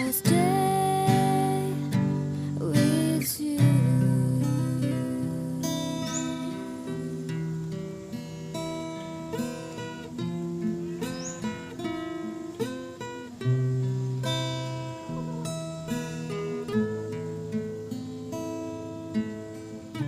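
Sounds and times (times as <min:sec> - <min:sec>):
acoustic guitar music: 0:00.0 - 0:20.0.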